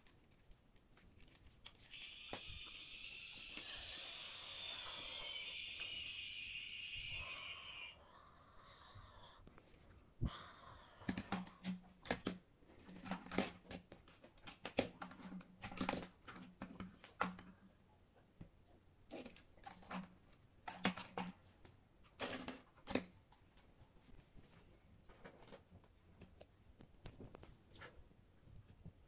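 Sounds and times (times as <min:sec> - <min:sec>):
plastic toys clicking and knocking: 0:11.1 - 0:17.6, 0:19.1 - 0:23.2.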